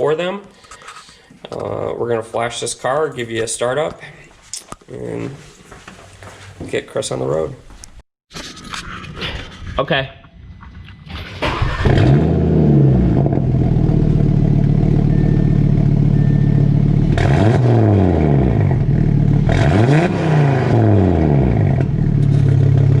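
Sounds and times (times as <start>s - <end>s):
car engine starting and idling: 10.2s - 23.0s
engine throttle blips: 10.2s - 23.0s.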